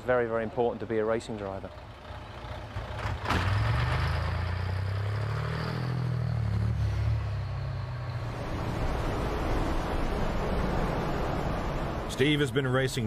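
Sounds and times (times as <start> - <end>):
racing truck engines revving: 0.0 - 13.0
rough rushing noise: 8.1 - 12.5.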